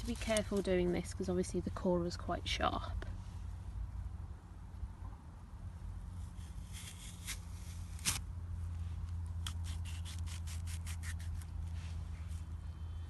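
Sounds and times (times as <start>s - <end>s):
apple crunching: 6.5s - 8.3s, 9.1s - 11.7s
apple corer scraping apple: 9.4s - 11.5s.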